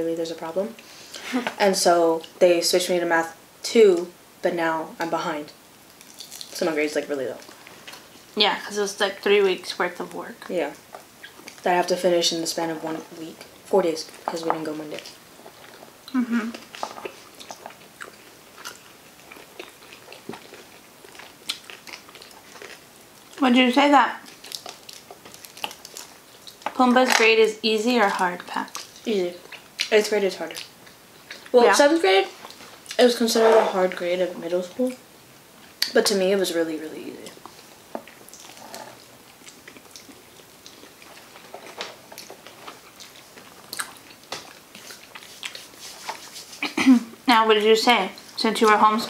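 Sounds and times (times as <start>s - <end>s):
people chewing: 5.9s - 6.7s, 7.4s - 8.4s, 9.1s - 26.8s, 28.0s - 34.2s, 37.2s - 49.0s.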